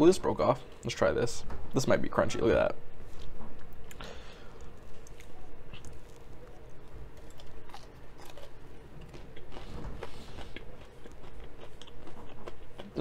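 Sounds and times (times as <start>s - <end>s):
man chewing crunchy food: 3.1s - 13.0s.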